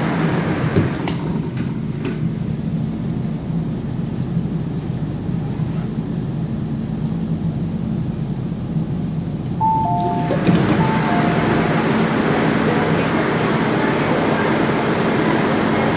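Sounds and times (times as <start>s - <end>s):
train rumbling: 0.0s - 15.9s
two-note descending chime: 9.6s - 12.4s.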